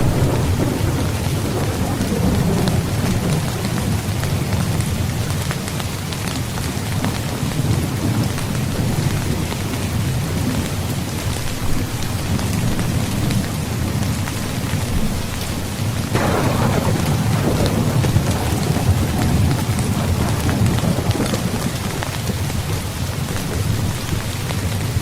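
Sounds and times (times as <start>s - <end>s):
thunderclap: 0.0s - 5.6s, 16.1s - 24.3s
thunder rumbling: 0.0s - 5.8s, 16.0s - 25.0s
heavy rain: 0.0s - 25.0s.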